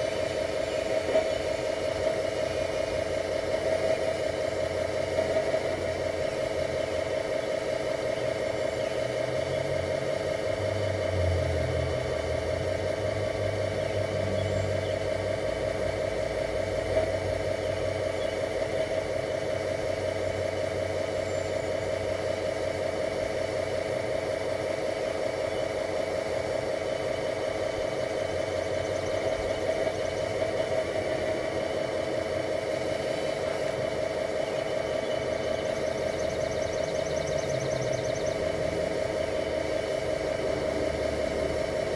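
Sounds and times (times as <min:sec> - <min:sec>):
simulated diesel engine idling: 0:00.0 - 0:41.9.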